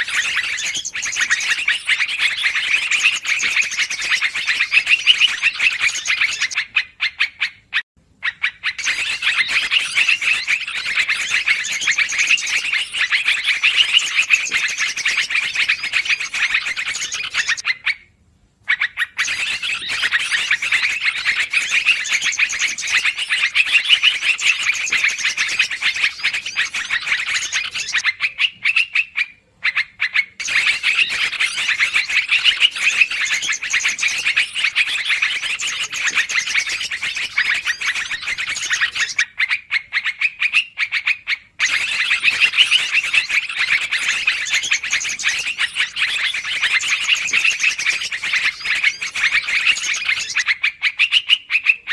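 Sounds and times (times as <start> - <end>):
bulbuls chattering: 30.4 - 39.2.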